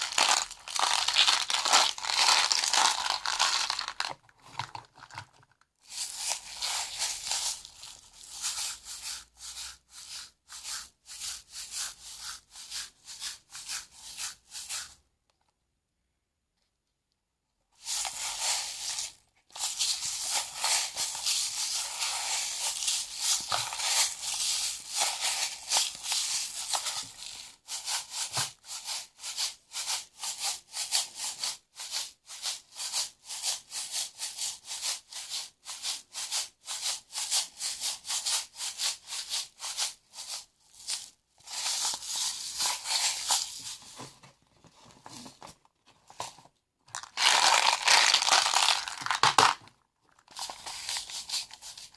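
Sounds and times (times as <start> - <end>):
beads rattling and clicking: 0.0 - 5.6, 46.9 - 51.1.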